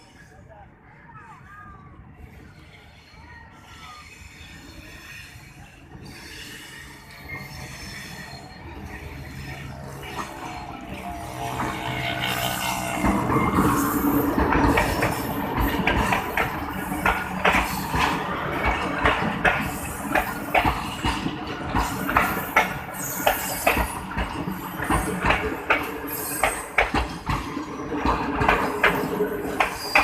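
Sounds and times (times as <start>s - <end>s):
diesel locomotive engine drone: 0.0s - 30.0s
wheel clacks over rail joints: 12.9s - 30.0s.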